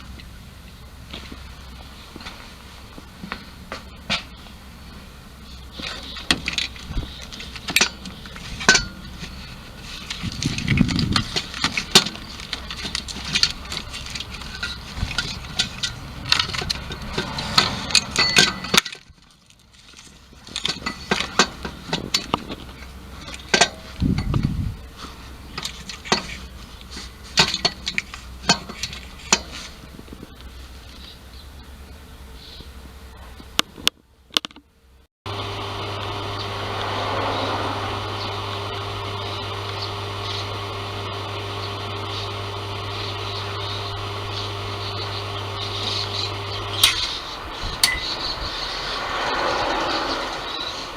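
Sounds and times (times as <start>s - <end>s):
metallic clinks and knocks: 11.3s - 22.6s.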